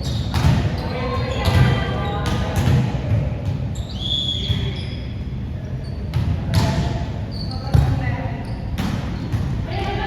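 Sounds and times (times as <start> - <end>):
shoe squeak: 0.0 - 2.3, 3.7 - 6.2, 7.2 - 9.4
basketball bouncing in echoing hall: 0.0 - 10.0.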